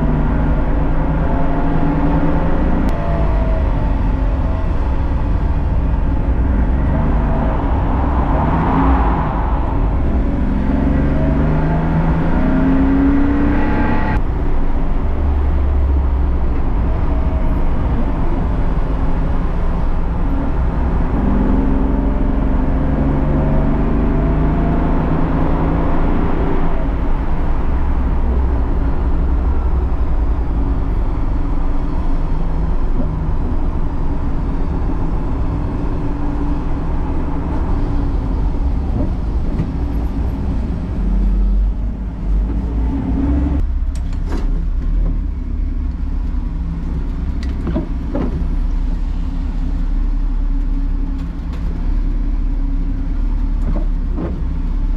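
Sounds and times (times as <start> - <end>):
road and wind noise: 0.0 - 54.9.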